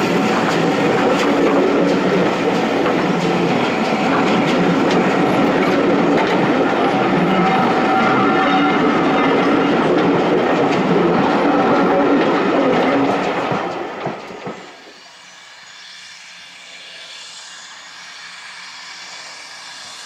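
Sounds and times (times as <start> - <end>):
wheels clicking over rail joints: 0.0 - 14.8
train coaches humming: 0.0 - 20.0.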